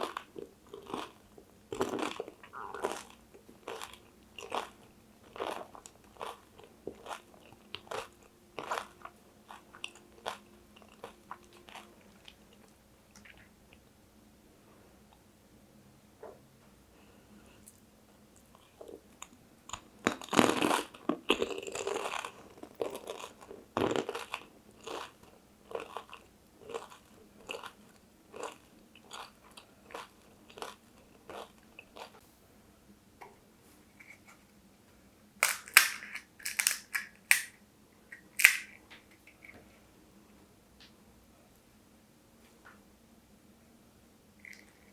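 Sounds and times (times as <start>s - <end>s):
crunching crisp food: 0.0s - 13.5s, 18.9s - 32.2s, 35.4s - 39.5s
chewing: 0.0s - 13.8s, 18.4s - 32.2s, 44.4s - 44.9s.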